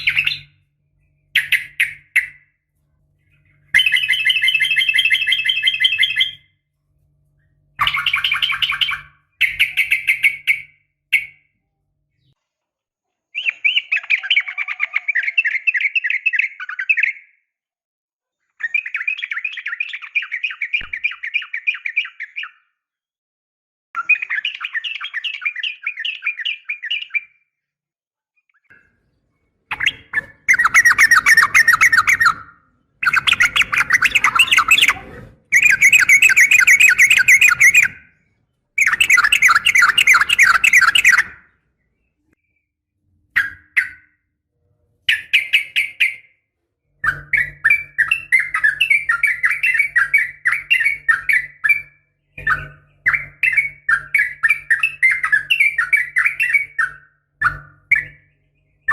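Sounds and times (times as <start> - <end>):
bird chattering calls: 29.7 - 38.1, 38.8 - 41.4.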